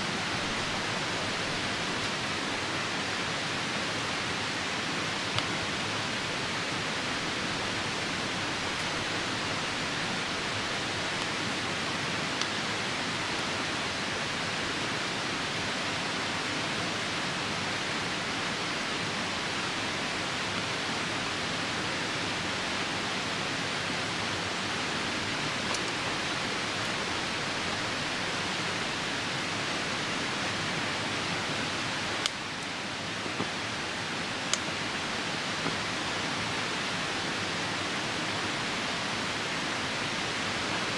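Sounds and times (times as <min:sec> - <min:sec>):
falling rain: 0:00.0 - 0:40.9
river rushing: 0:00.0 - 0:40.9
campfire pops: 0:25.6 - 0:26.1.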